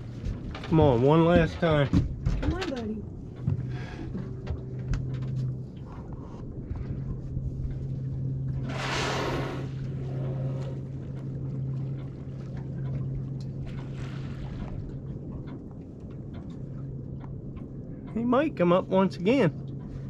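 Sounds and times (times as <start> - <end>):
boat motor idling: 0.0 - 20.0
whale blowing whoosh: 8.6 - 10.9.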